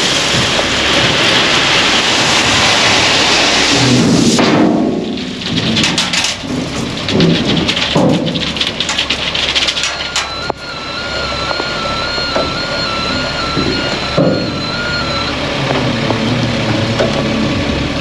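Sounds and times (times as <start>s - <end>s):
stone sliding from truck rumbling: 0.0s - 17.7s
stones clattering and rattling: 5.3s - 10.5s
electronic beeping tone: 9.9s - 15.6s.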